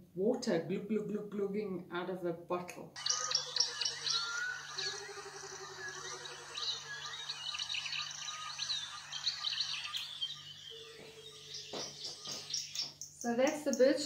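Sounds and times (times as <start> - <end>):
low bubbling bird call: 3.0 - 12.6
high bird chirps: 3.0 - 13.8.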